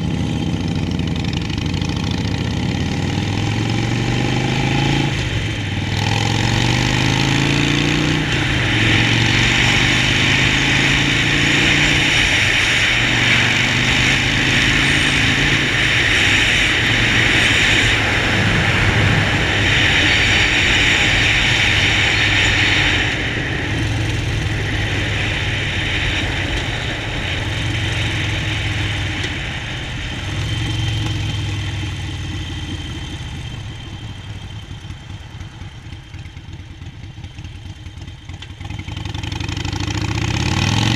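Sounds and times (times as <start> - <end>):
motorcycle engine running: 0.0 - 40.9
loud rushing noise: 3.3 - 34.6.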